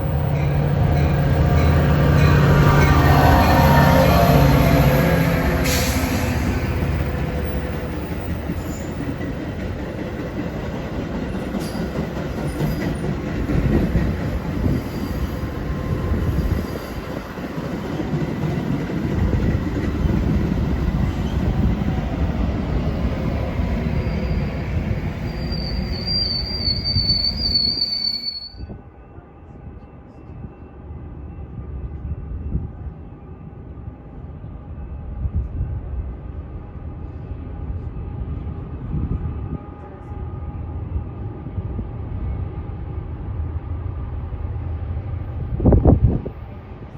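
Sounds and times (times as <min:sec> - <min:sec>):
train wheels clattering on rails: 0:05.6 - 0:21.9
high wheel squeal: 0:23.8 - 0:28.7.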